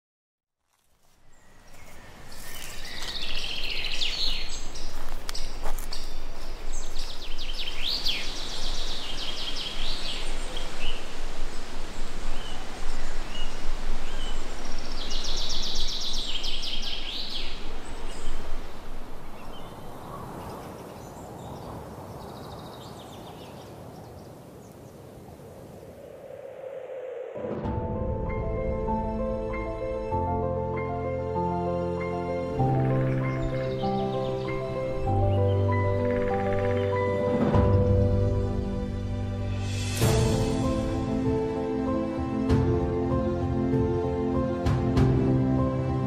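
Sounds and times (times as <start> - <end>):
outdoor hiss: 1.2 - 20.0
birds chirping and trilling: 1.2 - 27.5, 28.5 - 39.0.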